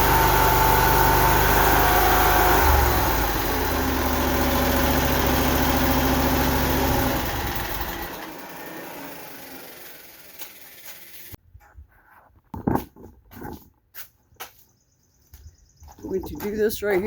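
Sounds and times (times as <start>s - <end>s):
skid steer engine running: 0.0s - 11.4s.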